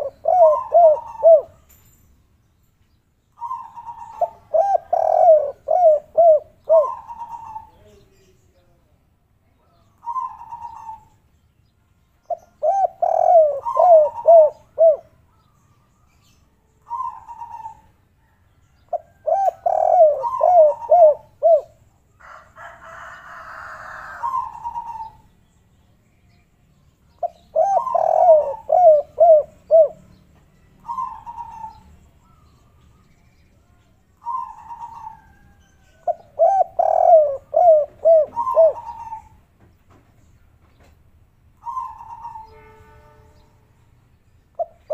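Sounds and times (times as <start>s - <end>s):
doves cooing: 0.0s - 1.6s, 3.4s - 7.9s, 10.0s - 11.2s, 12.3s - 15.1s, 16.9s - 21.8s, 23.3s - 25.3s, 27.2s - 30.1s, 30.8s - 32.5s, 34.2s - 39.4s, 41.6s - 42.6s.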